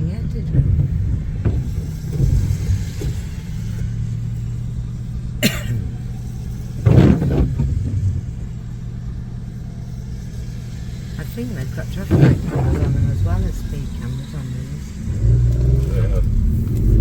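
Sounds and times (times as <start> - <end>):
car engine and road rumble: 0.0 - 17.0
thump: 0.4 - 3.8, 6.8 - 8.4, 11.9 - 13.3.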